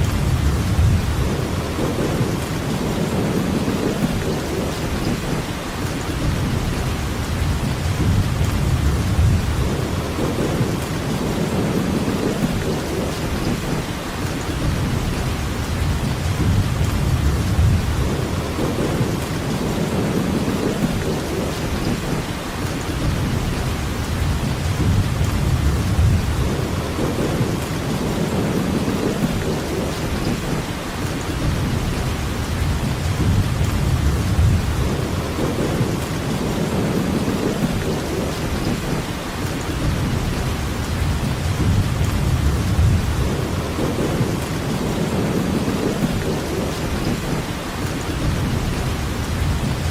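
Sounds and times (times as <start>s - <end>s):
heavy rainfall hiss: 0.0s - 49.9s.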